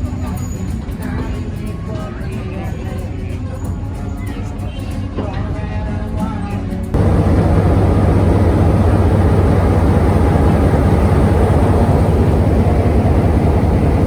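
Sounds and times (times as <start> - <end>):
rushing noise: 7.0 - 14.0
train rumbling: 7.0 - 14.0.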